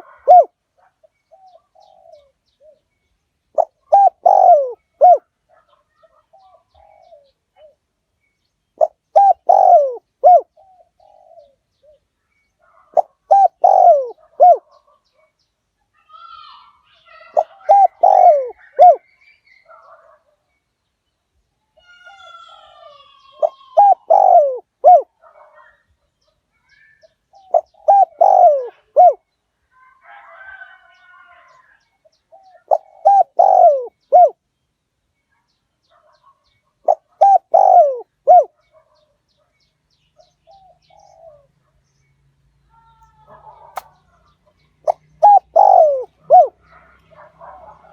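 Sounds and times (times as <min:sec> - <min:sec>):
dove cooing: 0:00.0 - 0:02.8, 0:03.5 - 0:07.8, 0:08.8 - 0:12.0, 0:12.6 - 0:14.8, 0:16.4 - 0:19.0, 0:21.9 - 0:25.8, 0:27.3 - 0:29.2, 0:32.3 - 0:34.4, 0:36.8 - 0:39.0, 0:40.5 - 0:41.5, 0:44.8 - 0:47.9.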